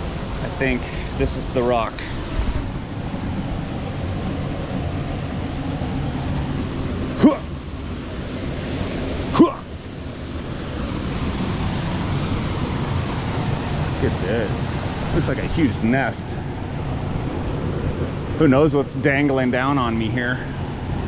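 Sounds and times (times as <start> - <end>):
waterfall rushing: 0.0 - 21.0
short rising yelps: 7.2 - 7.6, 9.2 - 9.7.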